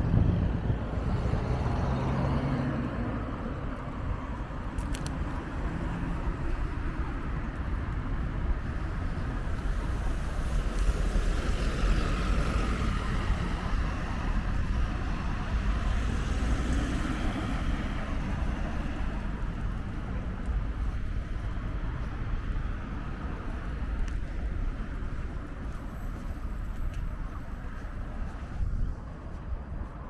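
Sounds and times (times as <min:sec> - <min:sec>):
vehicle passing: 0:00.0 - 0:04.1
car tyres and engines: 0:00.0 - 0:30.0
wind rumble on microphone: 0:00.0 - 0:30.0.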